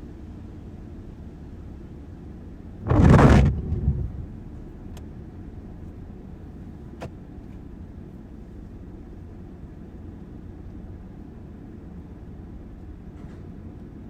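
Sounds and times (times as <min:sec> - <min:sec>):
sudden loud rush of noise: 0:02.9 - 0:05.0.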